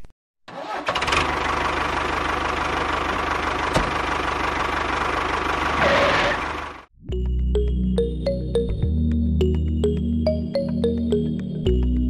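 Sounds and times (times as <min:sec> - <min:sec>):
tractor engine idling: 0:00.6 - 0:06.9.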